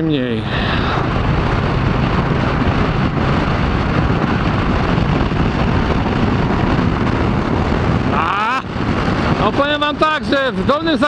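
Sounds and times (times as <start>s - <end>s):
motorcycle engine running: 0.0s - 11.0s
wind rushing on microphone: 0.0s - 11.0s.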